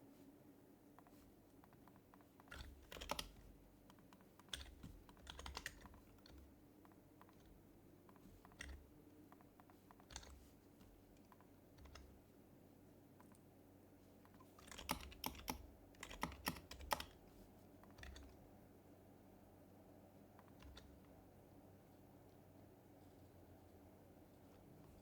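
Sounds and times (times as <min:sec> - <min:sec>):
soft muted keyboard keystrokes: 0:00.9 - 0:18.7, 0:20.0 - 0:25.0.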